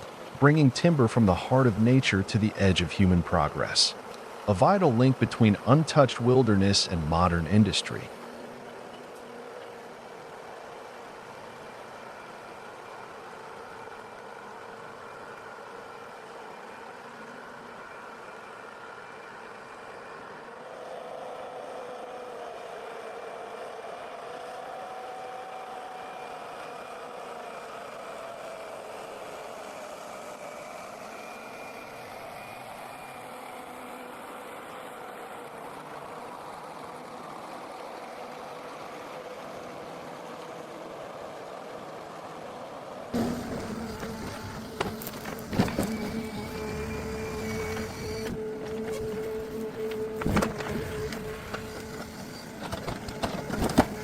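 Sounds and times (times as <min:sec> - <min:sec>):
diesel engine with whine: 0:23.5 - 0:54.0.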